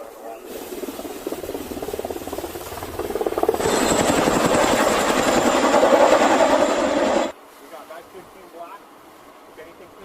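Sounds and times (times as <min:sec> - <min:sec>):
helicopter rotor beating: 0:00.0 - 0:07.3.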